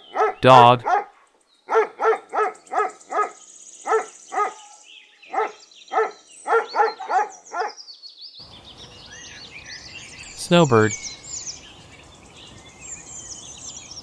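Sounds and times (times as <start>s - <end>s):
dog barking: 0.0s - 4.7s, 5.3s - 7.8s.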